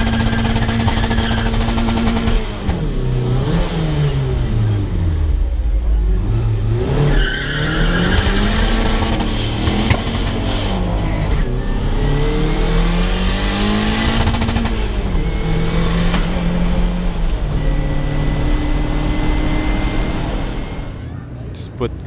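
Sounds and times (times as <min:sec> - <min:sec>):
pickup engine accelerating hard: 0:00.0 - 0:22.0.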